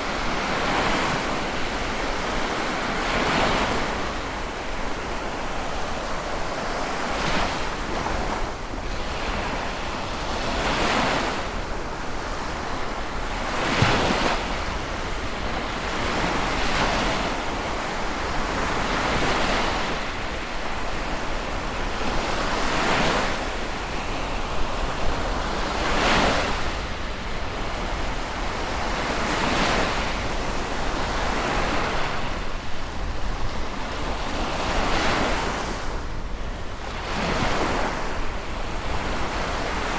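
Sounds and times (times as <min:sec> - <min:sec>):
steady rush of water: 0:00.0 - 0:10.5
sea waves breaking: 0:00.0 - 0:39.9.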